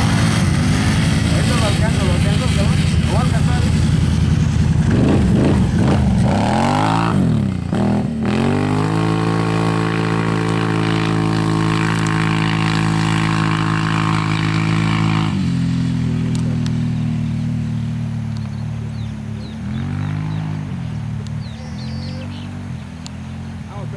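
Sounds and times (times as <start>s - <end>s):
vehicle engine revving: 0.0s - 23.9s.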